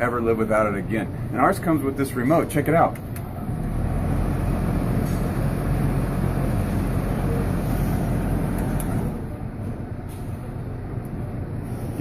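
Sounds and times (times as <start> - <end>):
house fan rushing air: 4.0 - 12.0.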